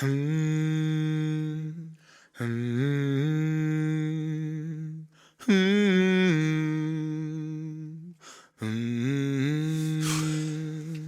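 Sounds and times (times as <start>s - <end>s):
person humming: 5.5s - 11.0s.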